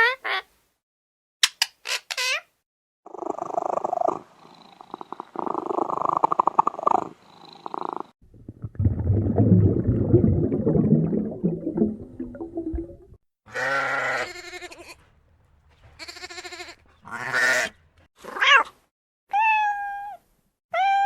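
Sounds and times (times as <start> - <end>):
cat purring: 3.1 - 8.2.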